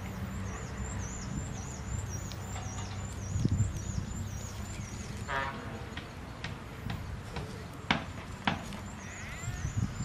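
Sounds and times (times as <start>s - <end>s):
bird chirping: 0.0s - 6.4s, 8.6s - 10.0s
animal call: 9.0s - 10.0s.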